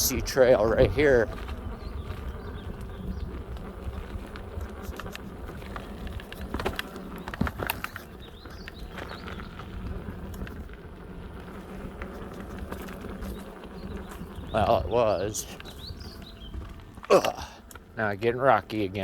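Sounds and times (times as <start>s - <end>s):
wind on microphone: 0.0s - 17.1s
bike clicking and rattling: 0.0s - 19.0s
bike tyres rumbling on dirt: 0.0s - 19.0s.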